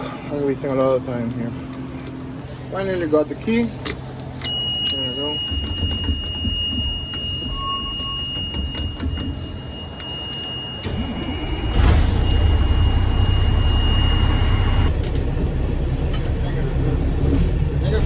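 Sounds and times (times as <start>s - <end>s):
high-pitched warning tone: 4.4s - 14.9s
truck engine running: 10.8s - 18.0s.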